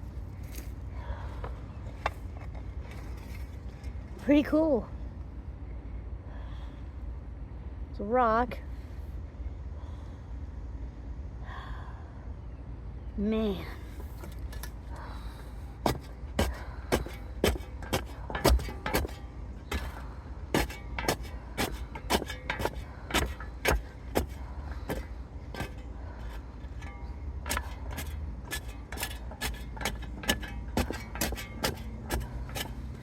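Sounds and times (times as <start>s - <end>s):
shovel scraping stony soil: 15.8s - 33.0s.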